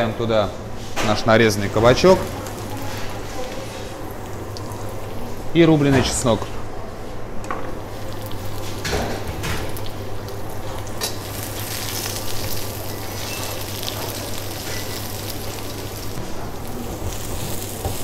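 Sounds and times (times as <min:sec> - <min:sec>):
vegetables sizzling in oil: 0:07.8 - 0:18.0.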